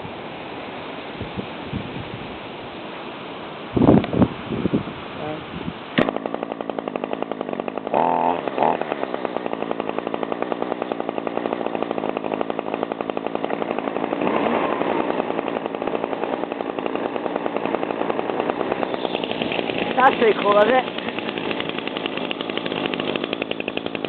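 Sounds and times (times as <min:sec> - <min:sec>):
leaf blower engine: 0:05.1 - 0:24.0
string trimmer engine: 0:05.9 - 0:24.0.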